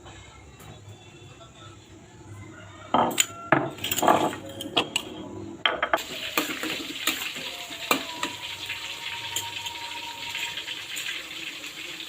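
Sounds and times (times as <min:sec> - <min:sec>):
dishes and utensils clinking: 0:02.9 - 0:08.4.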